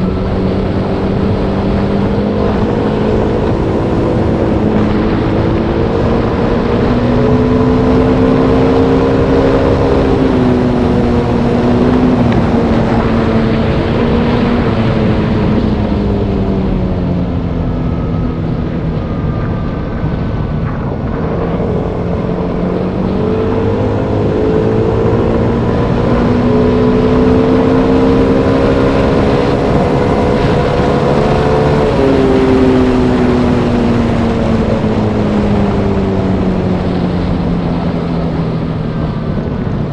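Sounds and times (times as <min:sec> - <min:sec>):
steady rush of noise: 0:00.0 - 0:39.9.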